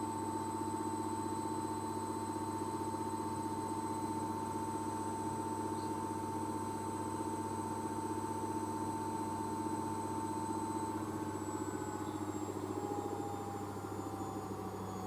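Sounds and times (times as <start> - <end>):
motor whine: 10.8 - 15.0.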